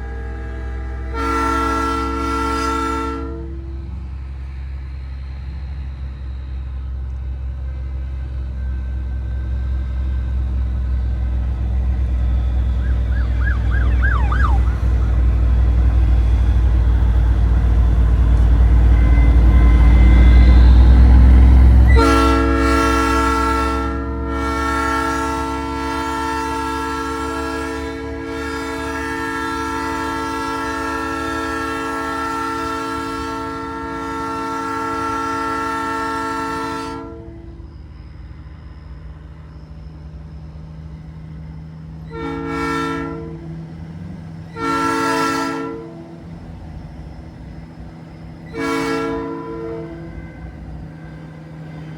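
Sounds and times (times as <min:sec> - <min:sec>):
truck train horn chord: 0:00.0 - 0:04.0, 0:13.1 - 0:15.6, 0:18.9 - 0:37.6, 0:42.0 - 0:43.8, 0:44.5 - 0:46.3, 0:48.4 - 0:50.6
truck engine and road rumble: 0:02.5 - 0:30.8, 0:37.4 - 0:51.9
truck engine rumble: 0:03.4 - 0:22.2
siren yelp chirps: 0:12.6 - 0:15.4.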